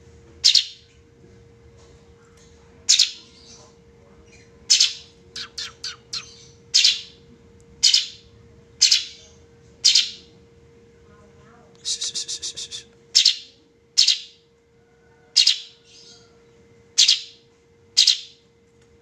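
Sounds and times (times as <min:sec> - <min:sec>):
songbird harsh calls: 0:00.4 - 0:00.8, 0:02.9 - 0:03.6, 0:04.4 - 0:07.2, 0:07.8 - 0:08.2, 0:08.8 - 0:10.3, 0:12.0 - 0:14.4, 0:15.3 - 0:16.4, 0:17.0 - 0:17.4, 0:18.0 - 0:18.4.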